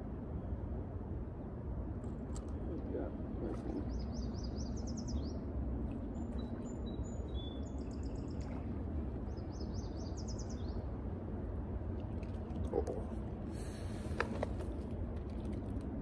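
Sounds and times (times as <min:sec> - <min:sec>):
low background rush: 0:00.0 - 0:16.0
songbird singing: 0:02.3 - 0:11.0.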